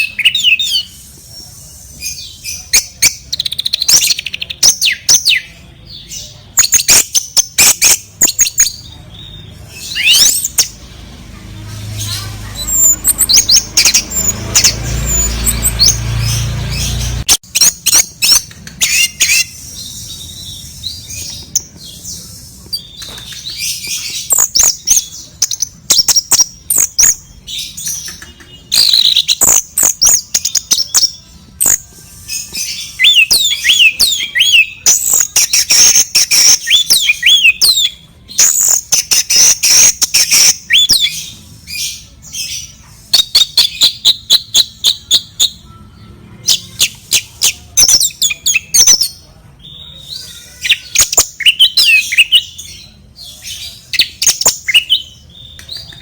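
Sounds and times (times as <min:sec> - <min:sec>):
bird chirping and calling: 0:00.0 - 0:56.0
sharp clicks: 0:17.9 - 0:19.0, 0:22.7 - 0:23.6.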